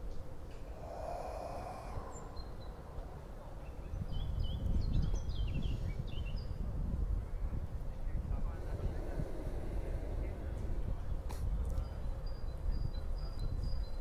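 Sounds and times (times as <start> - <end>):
birds twittering: 0.5 - 6.7, 8.4 - 14.0
low steady rumble: 6.6 - 13.3.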